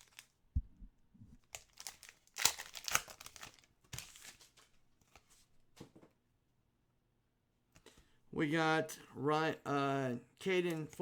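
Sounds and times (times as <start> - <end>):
plastic packaging crinkling: 0.0 - 0.4, 1.4 - 4.7.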